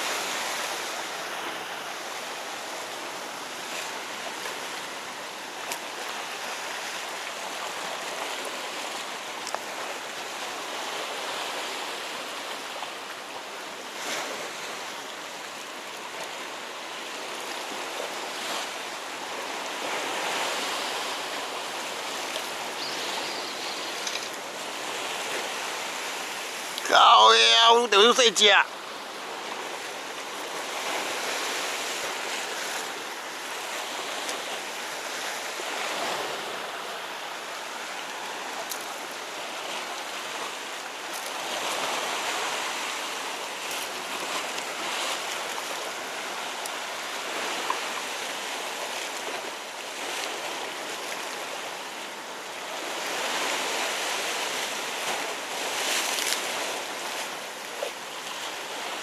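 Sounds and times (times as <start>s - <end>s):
waves washing on rocky shore: 0.0s - 59.0s
faint clicks: 23.9s - 24.4s.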